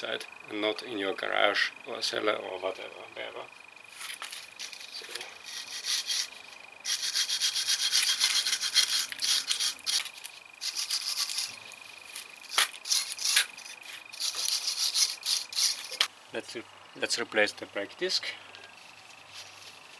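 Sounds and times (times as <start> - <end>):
brush scrubbing metal: 4.4 - 16.1.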